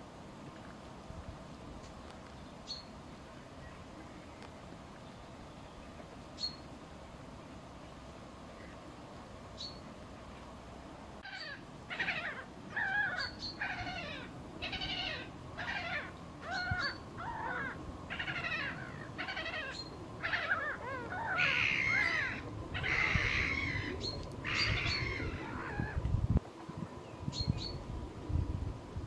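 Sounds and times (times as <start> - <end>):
harsh downward-bending bird calls: 11.2 - 26.0.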